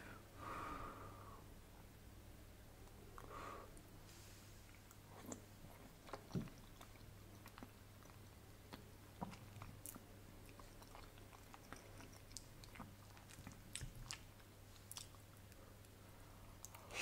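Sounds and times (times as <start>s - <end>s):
chewing soft food: 4.6s - 16.9s.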